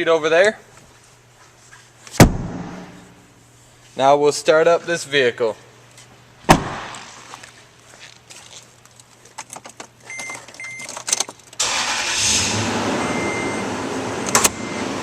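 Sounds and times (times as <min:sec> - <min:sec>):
truck engine starting and idling: 0:11.6 - 0:15.0.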